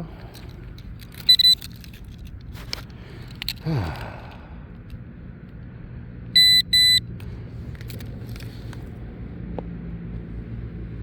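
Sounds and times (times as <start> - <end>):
steady low hum: 0.0 - 11.0
light clicks and scrapes: 0.1 - 3.6, 7.6 - 9.0
metal detector beeps: 1.2 - 1.7, 6.4 - 7.1.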